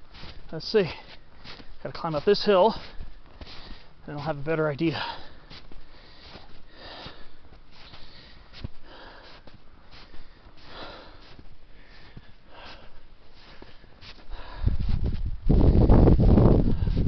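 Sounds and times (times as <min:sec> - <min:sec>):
footsteps crunching in snow: 0:00.0 - 0:17.0
person breathing hard: 0:02.7 - 0:04.0, 0:04.9 - 0:15.9, 0:16.5 - 0:17.0.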